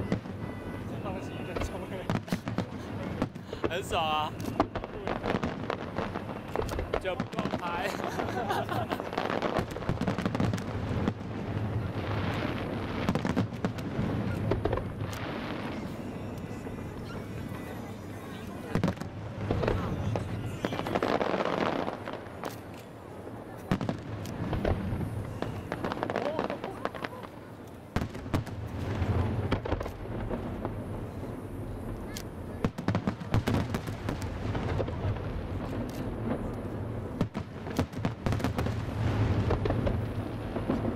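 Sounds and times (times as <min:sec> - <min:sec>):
fireworks exploding: 0:00.0 - 0:40.9
steady background din: 0:00.0 - 0:40.9.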